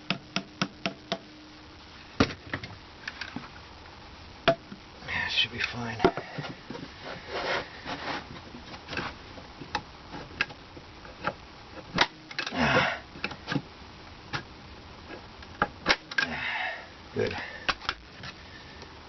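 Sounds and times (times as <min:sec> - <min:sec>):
rubbing and rustling: 0:06.2 - 0:12.0.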